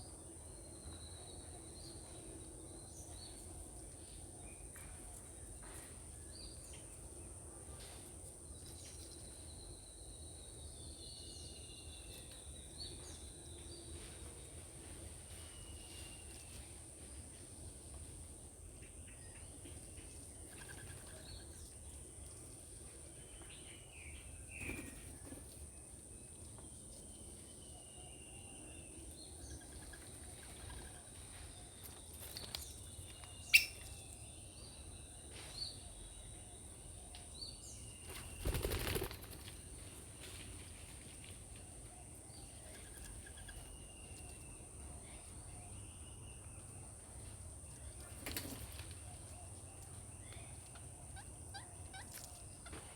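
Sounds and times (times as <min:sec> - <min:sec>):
birds chirping and calling: 0:29.6 - 0:34.1.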